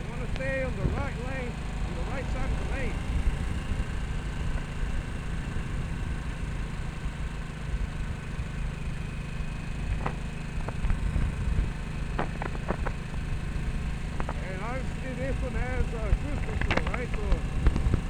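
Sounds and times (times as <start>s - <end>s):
motorcycle engine humming: 0.0s - 18.0s
wind rumble: 9.9s - 18.0s.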